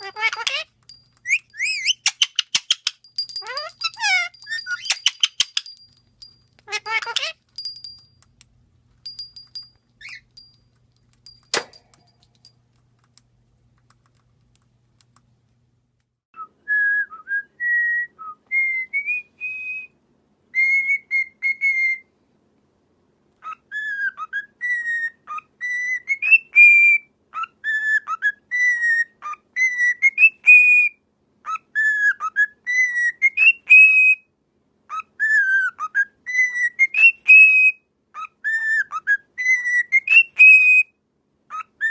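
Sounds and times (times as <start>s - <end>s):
parrot whistling a tune: 0.0s - 5.6s, 16.4s - 22.1s, 23.4s - 34.3s, 34.9s - 41.9s
sharp click: 11.0s - 13.3s.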